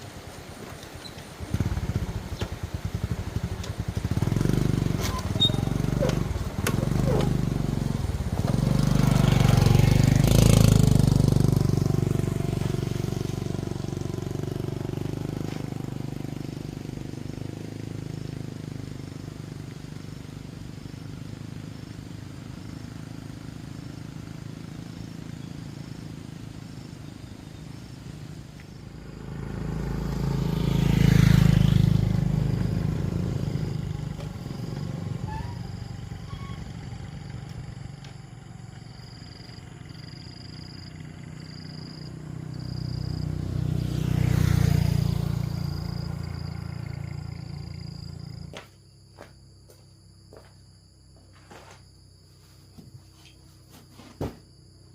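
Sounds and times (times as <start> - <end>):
vehicle engine passing: 1.4 - 48.6
faint high chirp: 5.0 - 5.8.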